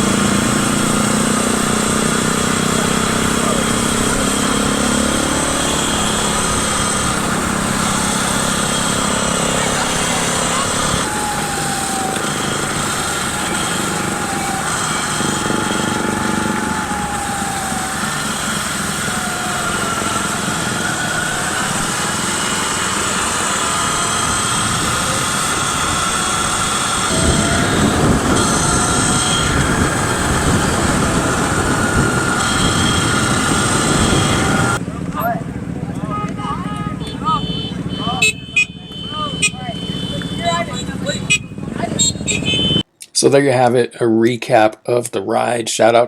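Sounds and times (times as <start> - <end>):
electric bike motor whining: 0.0 - 34.8
wind noise: 0.0 - 34.8.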